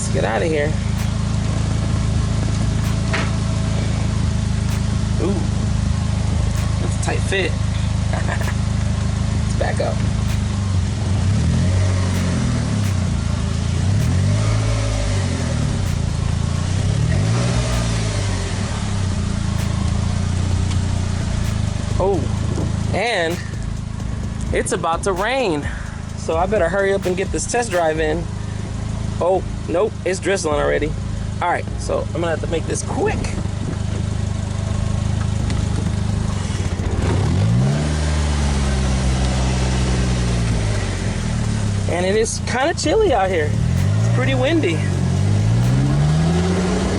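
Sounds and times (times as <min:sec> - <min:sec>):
car engine revving: 0:00.0 - 0:46.9.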